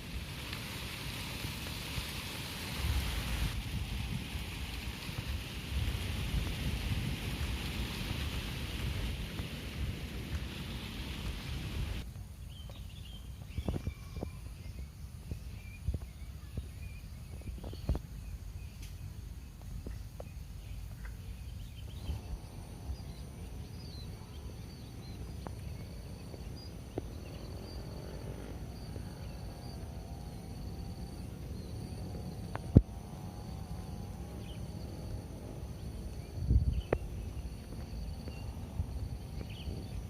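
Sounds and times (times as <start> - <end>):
rain hiss: 0.0 - 13.8, 14.5 - 40.0
low steady rumble: 2.7 - 40.0
bird chirps: 12.4 - 19.0
high-pitched insect calls: 12.7 - 40.0.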